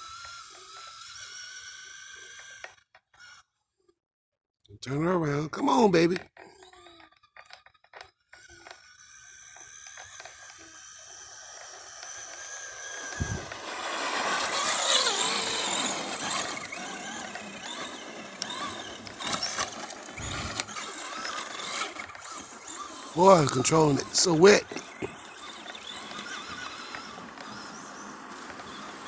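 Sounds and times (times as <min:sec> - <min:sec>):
rc car electric motor whining: 0:00.0 - 0:03.6, 0:05.7 - 0:29.0.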